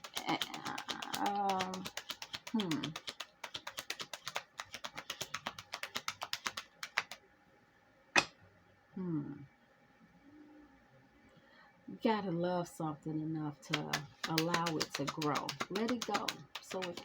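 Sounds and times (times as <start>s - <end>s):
cards being shuffled: 0.0s - 7.2s, 13.7s - 17.0s.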